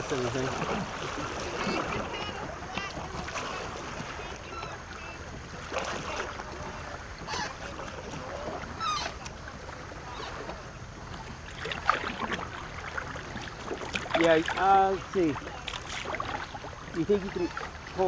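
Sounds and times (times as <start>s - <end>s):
faint voices: 0.0s - 11.0s
paddle splashes: 0.0s - 18.0s
water splashing and lapping: 0.0s - 18.0s.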